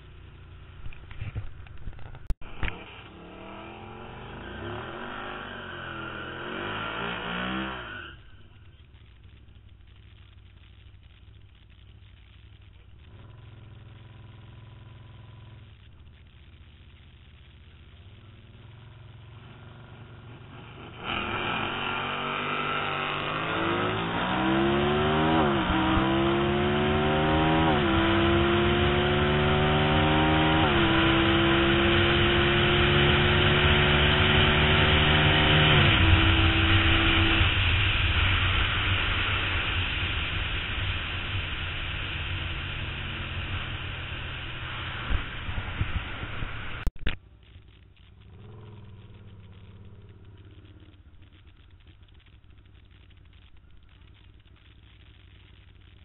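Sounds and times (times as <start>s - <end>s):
motorcycle engine revving: 0.0s - 56.0s
wind on microphone: 43.2s - 46.9s.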